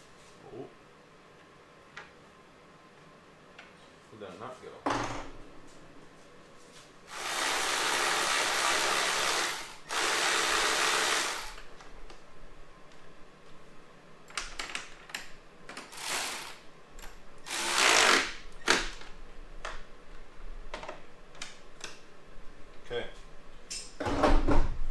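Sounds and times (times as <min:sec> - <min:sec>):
cordless power driver running: 0:07.1 - 0:11.8, 0:15.9 - 0:16.6, 0:17.5 - 0:19.0.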